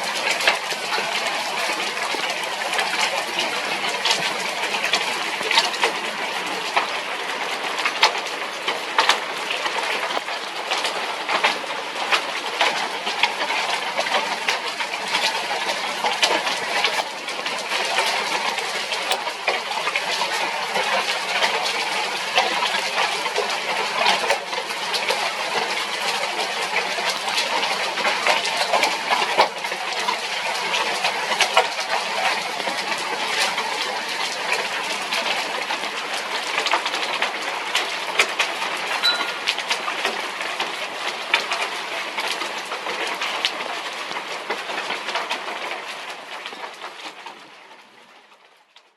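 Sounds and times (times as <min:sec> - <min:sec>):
raindrops ticking on surfaces: 0:00.0 - 0:48.9.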